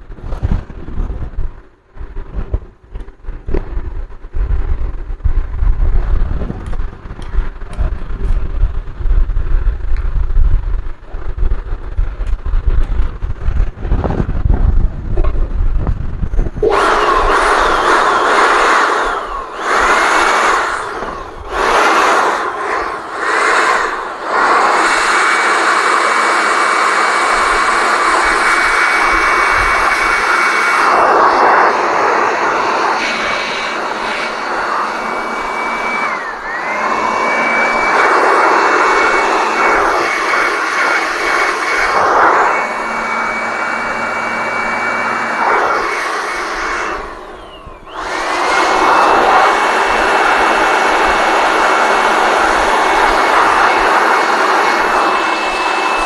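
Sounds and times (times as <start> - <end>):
hot air blower whining: 12.2 - 56.0.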